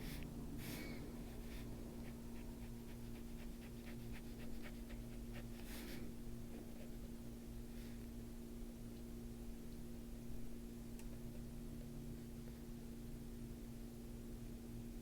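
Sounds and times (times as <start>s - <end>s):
low electrical hum: 0.0s - 15.0s
pencil scratching on paper: 1.4s - 6.9s.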